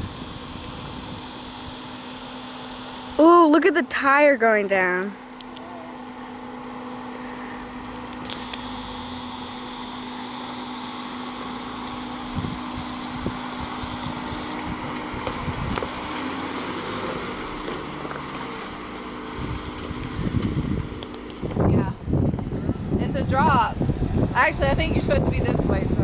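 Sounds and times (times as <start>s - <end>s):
wind buffeting microphone: 0.0s - 1.8s, 12.2s - 16.4s, 18.7s - 26.0s
vehicle engine running slowly: 5.0s - 26.0s.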